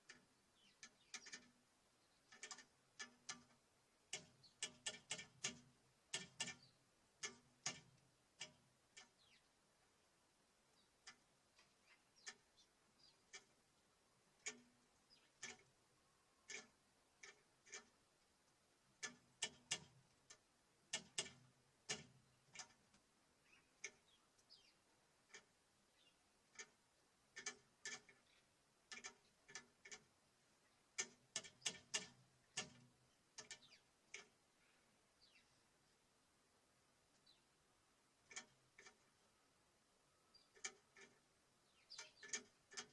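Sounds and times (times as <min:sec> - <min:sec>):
beaks tapping on wooden feeder: 0:00.0 - 0:09.5, 0:10.9 - 0:13.6, 0:14.3 - 0:15.8, 0:16.4 - 0:18.0, 0:18.9 - 0:30.2, 0:30.8 - 0:34.4, 0:38.2 - 0:39.2, 0:40.4 - 0:42.9
faint bird chirps: 0:00.1 - 0:02.5, 0:09.0 - 0:09.6, 0:10.7 - 0:17.8, 0:23.4 - 0:26.7, 0:27.4 - 0:29.5, 0:32.5 - 0:36.0, 0:37.1 - 0:42.8.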